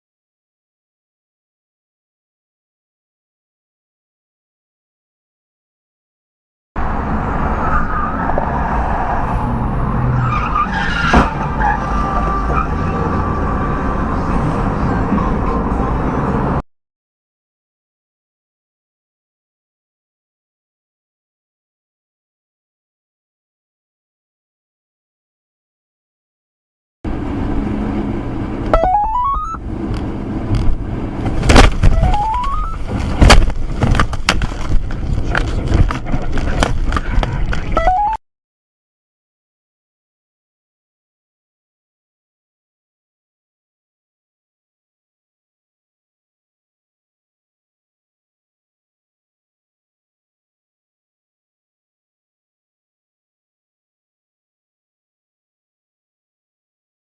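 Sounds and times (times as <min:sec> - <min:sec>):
car road and engine noise: 0:06.8 - 0:16.6, 0:27.1 - 0:38.2
vehicle rumble: 0:06.8 - 0:16.6, 0:27.1 - 0:38.2
rising tone: 0:28.7 - 0:29.6, 0:32.0 - 0:32.8.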